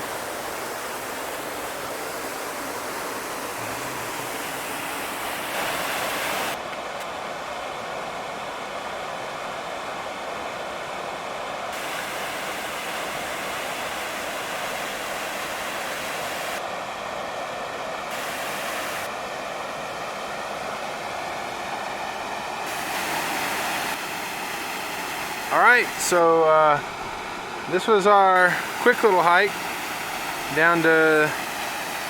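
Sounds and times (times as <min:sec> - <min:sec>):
waterfall splashing into pool: 0:00.0 - 0:06.6, 0:11.8 - 0:16.6, 0:22.7 - 0:27.1, 0:28.4 - 0:32.0.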